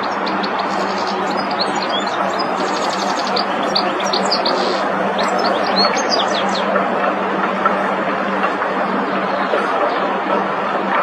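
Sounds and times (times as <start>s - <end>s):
goldfinch twittering: 0.0s - 6.7s.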